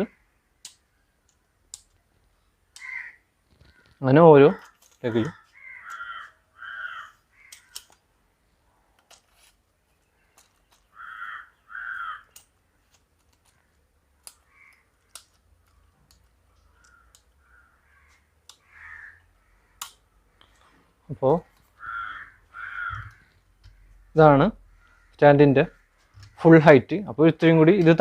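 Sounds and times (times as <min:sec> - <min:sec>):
crow cawing: 0:02.8 - 0:08.0, 0:10.8 - 0:12.4, 0:14.3 - 0:15.2, 0:16.6 - 0:20.7, 0:21.4 - 0:26.5.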